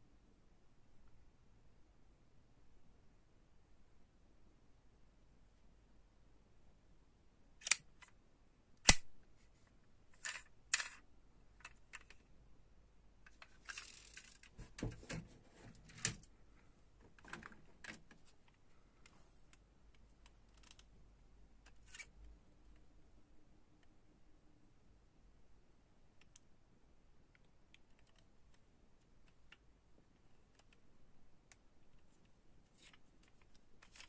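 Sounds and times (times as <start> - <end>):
toy cars clicking and knocking: 10.2 - 11.0, 13.3 - 14.6.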